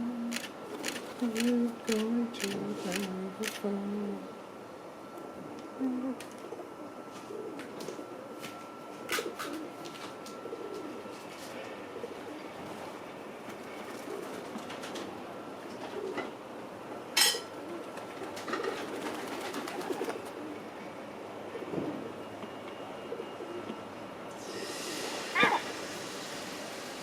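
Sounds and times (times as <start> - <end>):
pigeons cooing: 5.2 - 15.1, 15.8 - 20.8, 23.0 - 23.8, 24.4 - 26.8.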